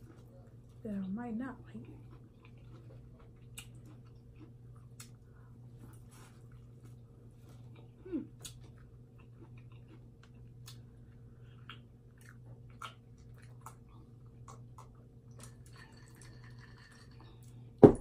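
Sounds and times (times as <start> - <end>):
low steady hum: 0.0 - 18.0
person chewing: 1.8 - 15.7.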